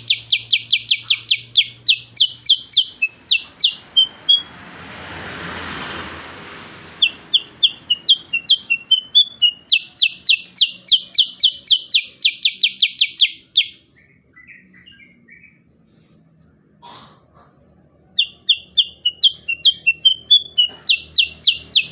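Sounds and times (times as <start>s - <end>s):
bulbul singing rapid notes: 0.0s - 4.6s, 7.0s - 15.4s, 18.2s - 21.9s
faint bird chirps: 0.0s - 4.6s, 7.0s - 21.9s.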